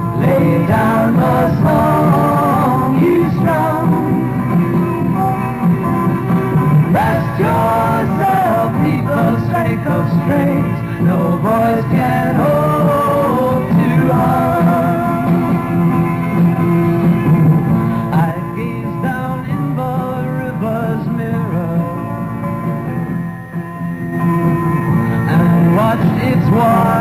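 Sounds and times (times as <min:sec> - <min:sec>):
person singing: 0:00.0 - 0:04.4, 0:06.9 - 0:15.7, 0:17.9 - 0:22.2, 0:25.1 - 0:27.0
rock band playing: 0:00.0 - 0:18.6, 0:21.9 - 0:27.0
electric guitar lines: 0:00.0 - 0:27.0.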